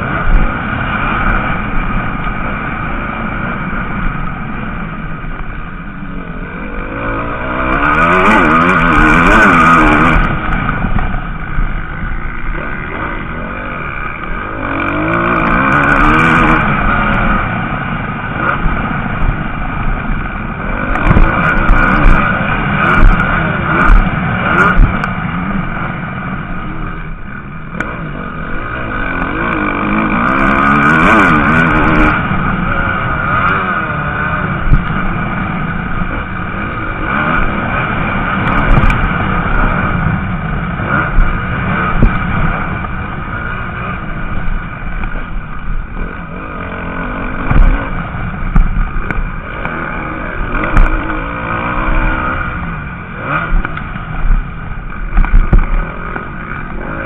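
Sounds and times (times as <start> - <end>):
motocross bike engines revving: 0.0 - 57.0.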